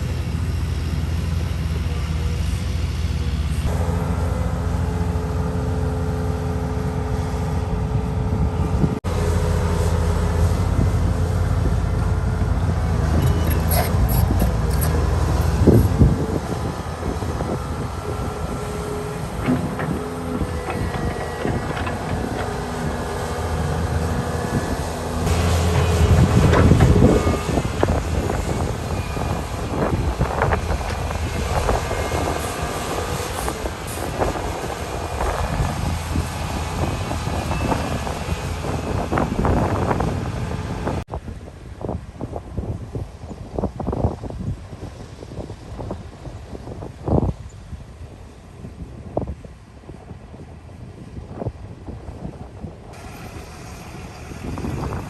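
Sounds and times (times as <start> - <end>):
excavator diesel rumble: 0.0 - 41.1, 51.8 - 55.0
wind on microphone: 6.8 - 55.0
thin squealing tones: 13.1 - 16.6
knocks and clatter: 19.4 - 22.8, 25.3 - 28.0.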